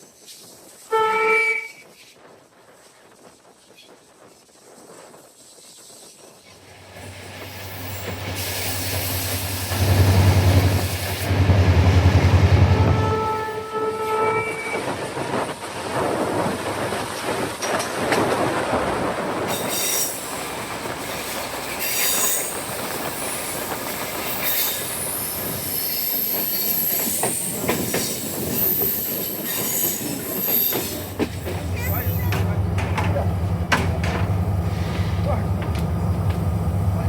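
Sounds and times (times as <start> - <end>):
train running on rails: 0.0 - 37.0
train horn: 0.9 - 1.9, 12.6 - 14.9.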